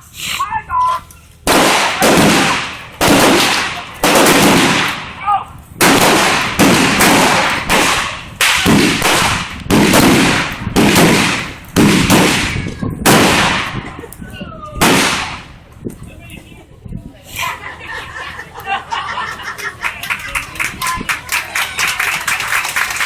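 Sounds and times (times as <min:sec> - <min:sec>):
loud sharp blasts: 0:01.4 - 0:14.0, 0:14.8 - 0:15.7.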